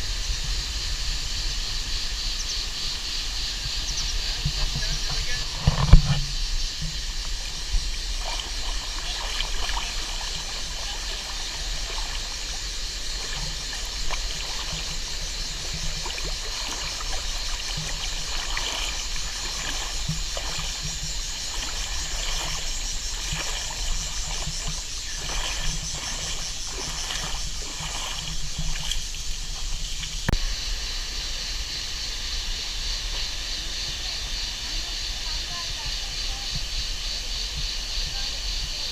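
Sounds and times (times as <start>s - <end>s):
stream water rushing: 0.8s - 31.2s.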